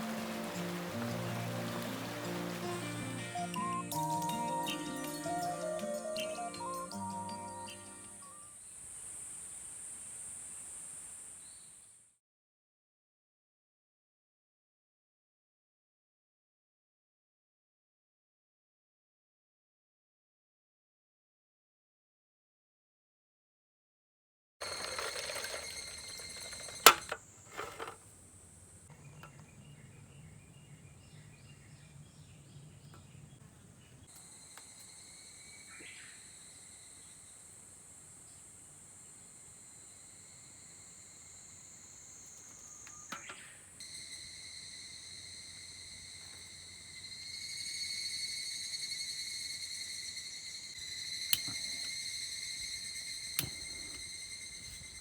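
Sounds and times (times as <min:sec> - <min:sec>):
insects shrilling: 0:24.6 - 0:27.8, 0:39.8 - 0:55.0.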